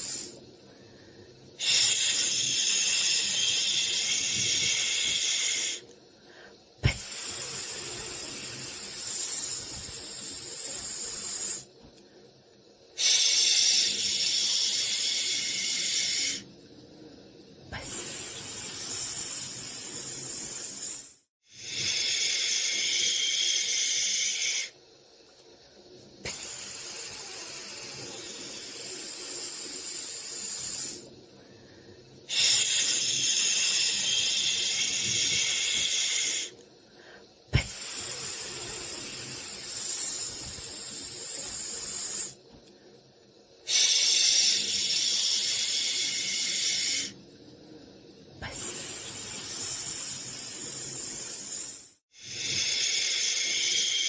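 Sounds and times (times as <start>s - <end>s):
person shushing: 26.3s - 28.9s.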